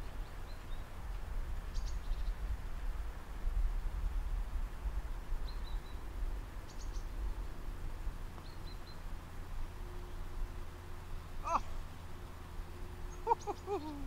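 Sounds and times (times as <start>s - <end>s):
small bird chirping: 1.7s - 2.4s, 5.4s - 6.0s, 6.6s - 7.2s, 8.4s - 9.1s, 13.1s - 14.0s.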